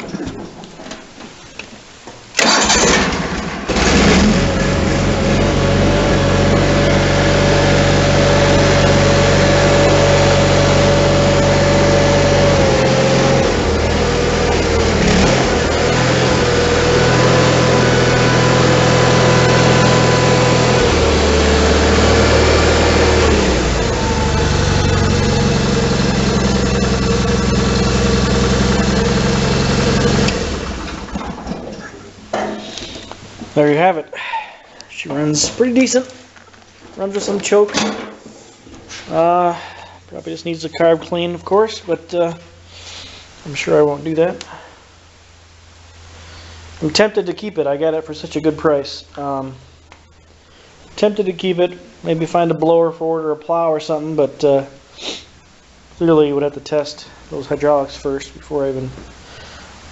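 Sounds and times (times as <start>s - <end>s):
garden tractor engine starting: 2.4s - 32.0s.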